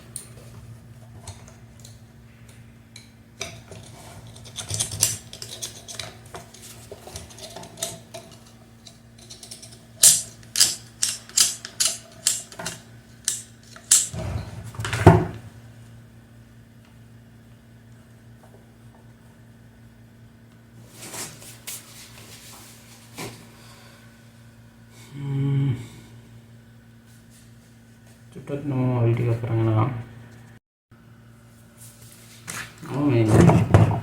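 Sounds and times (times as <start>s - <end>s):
small metal tools clinking: 3.4s - 14.1s.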